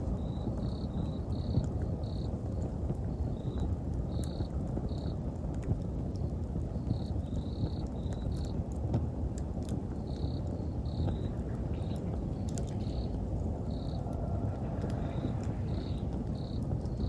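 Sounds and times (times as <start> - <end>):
crickets chirping: 0.0 - 5.3, 6.6 - 17.0
wood fire crackling: 0.0 - 17.0
low rumble: 10.7 - 17.0.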